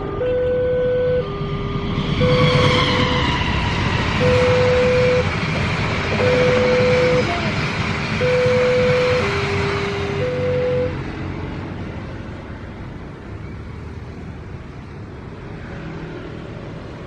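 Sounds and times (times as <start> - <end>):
two-tone crossing alarm: 0.0 - 5.5, 6.1 - 11.1
train passing with rumble: 0.0 - 17.0.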